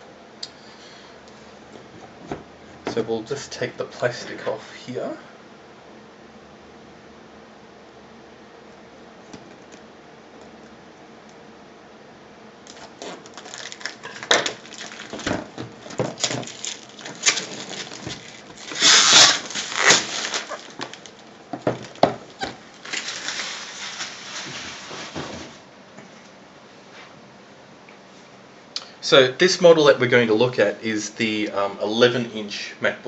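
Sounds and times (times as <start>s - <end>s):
plastic wrap crinkling and tearing: 12.7s - 25.2s.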